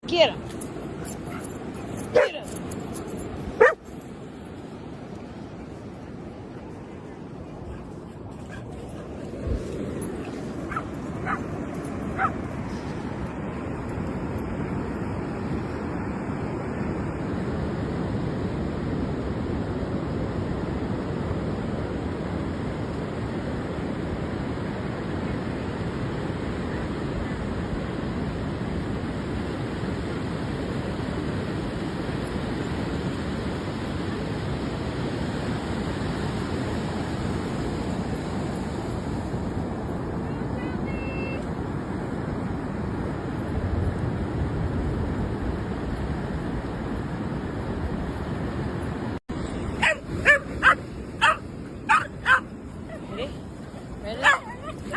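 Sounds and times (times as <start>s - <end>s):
surf and wind: 0.0s - 54.9s
dog barking: 1.0s - 2.5s, 3.6s - 3.9s, 10.7s - 11.5s, 12.2s - 12.4s, 49.8s - 53.0s, 54.2s - 54.9s.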